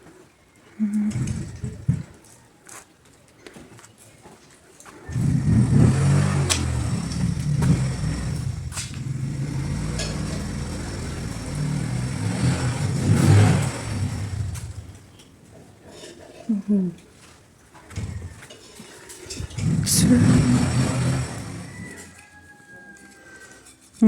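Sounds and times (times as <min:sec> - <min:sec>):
engine running with low hum: 0:01.0 - 0:02.1, 0:05.1 - 0:15.8, 0:17.8 - 0:22.4.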